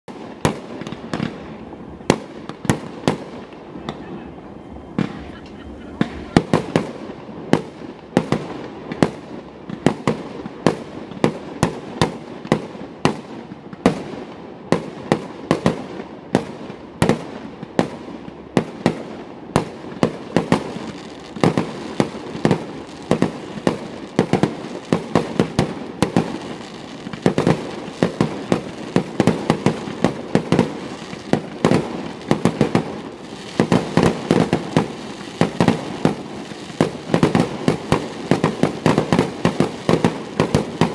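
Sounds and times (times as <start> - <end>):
firework bangs and cracks: 0.1 - 40.9
distant explosions rumbling: 0.8 - 8.4.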